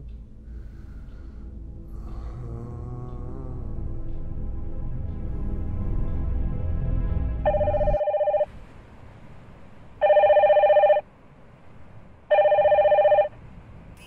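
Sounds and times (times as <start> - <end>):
low music drone: 0.0 - 8.4
mobile phone ringing: 7.5 - 8.5, 10.0 - 11.0, 12.3 - 13.4.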